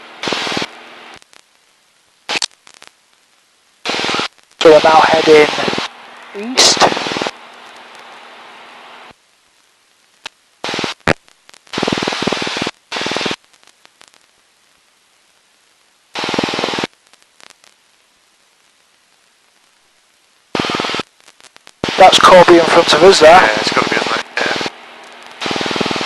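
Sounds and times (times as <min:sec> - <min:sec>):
intercom hissing noise: 0:03.9 - 0:07.3, 0:20.6 - 0:21.0, 0:21.8 - 0:26.0.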